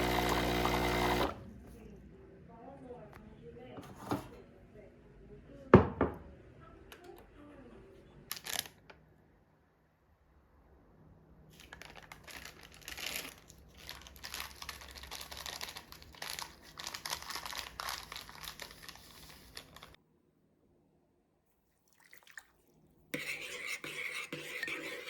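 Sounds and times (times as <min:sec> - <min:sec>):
wrapper crinkling and rustling: 0:08.3 - 0:08.8, 0:11.6 - 0:20.0.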